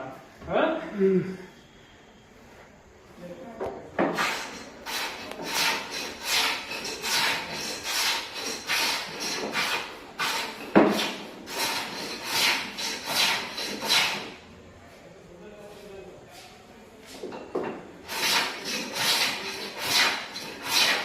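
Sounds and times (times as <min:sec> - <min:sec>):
hand tool scraping wood: 0:04.0 - 0:14.4, 0:18.0 - 0:21.0.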